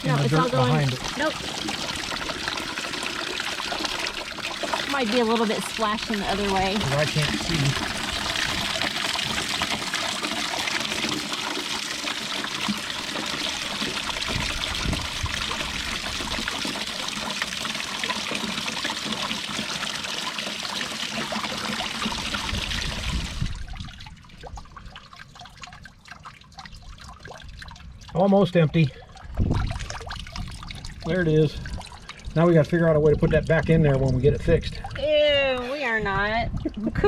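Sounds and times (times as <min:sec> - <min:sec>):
water draining into a container: 0:00.0 - 0:37.0
water splashing into a container: 0:00.0 - 0:37.0.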